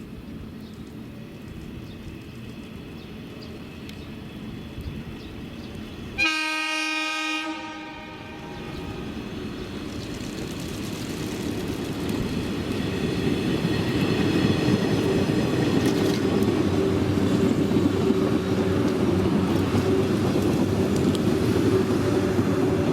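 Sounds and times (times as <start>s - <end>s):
train horn blast: 6.2s - 9.0s
electric train running: 8.1s - 22.9s.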